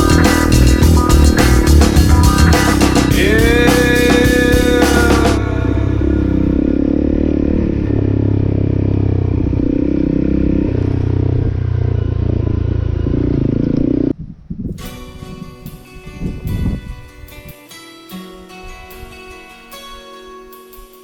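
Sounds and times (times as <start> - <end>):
motorcycle engine running: 0.0 - 14.4.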